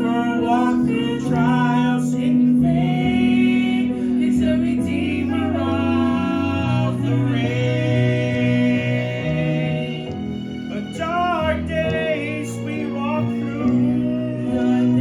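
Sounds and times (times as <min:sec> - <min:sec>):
instrumental accompaniment: 0:00.0 - 0:15.0
voices singing gospel song: 0:00.0 - 0:15.0.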